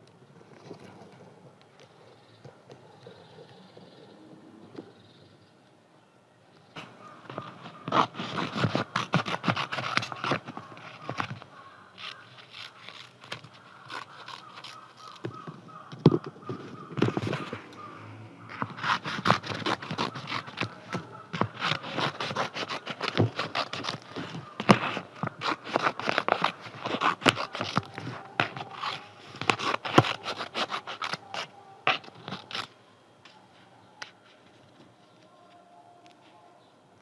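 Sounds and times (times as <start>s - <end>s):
scissors snipping paper: 6.8s - 15.4s, 18.5s - 32.7s
paper rustling: 6.8s - 15.5s, 16.1s - 17.9s, 18.5s - 32.7s.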